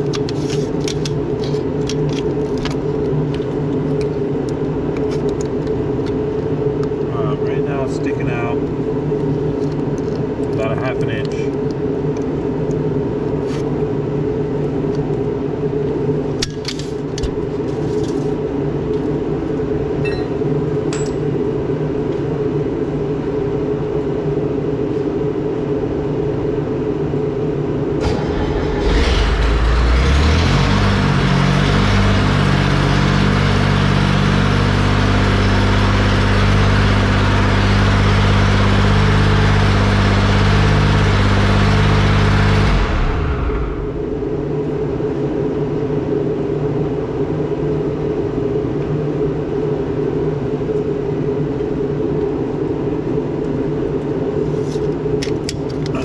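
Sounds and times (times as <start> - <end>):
paver engine running: 27.9 - 45.2.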